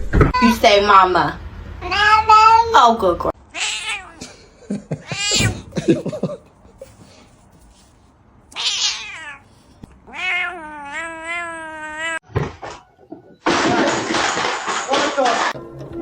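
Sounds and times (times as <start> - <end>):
cat meowing: 3.5 - 4.2, 5.1 - 5.7, 8.5 - 12.2.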